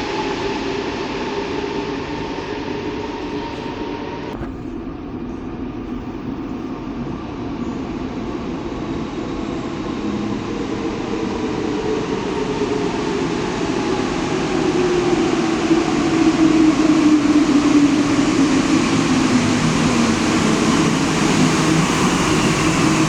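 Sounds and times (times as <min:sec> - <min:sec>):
metro train rumbling on rails: 0:00.0 - 0:23.0.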